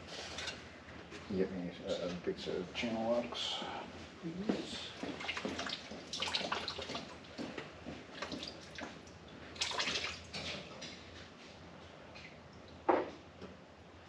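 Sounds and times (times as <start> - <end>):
liquid splashing and trickling: 5.1 - 7.4, 8.2 - 10.8.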